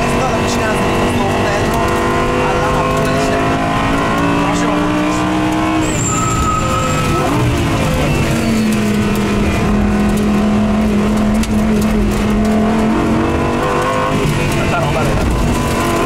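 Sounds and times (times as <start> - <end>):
race car engine: 0.0 - 16.0.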